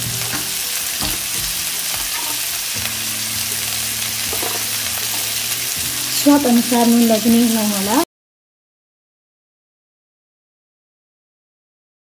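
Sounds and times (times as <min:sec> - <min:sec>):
tomatoes sizzling in a frying pan: 0:00.0 - 0:08.1.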